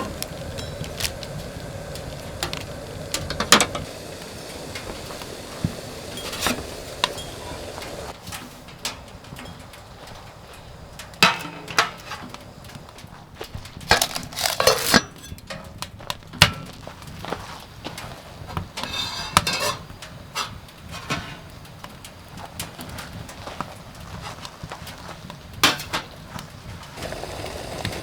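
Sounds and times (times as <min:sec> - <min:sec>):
knocks and clinks of hard objects: 0:13.7 - 0:16.8
clattering: 0:13.8 - 0:15.8.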